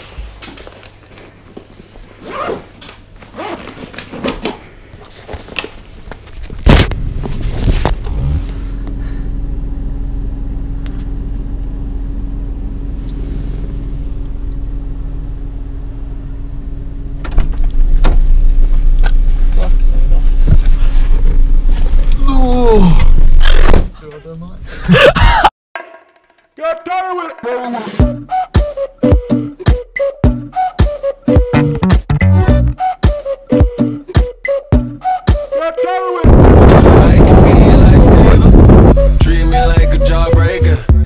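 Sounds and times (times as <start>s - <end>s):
zip: 2.2s - 2.7s, 3.3s - 3.9s
car engine idling in cabin: 7.0s - 22.6s.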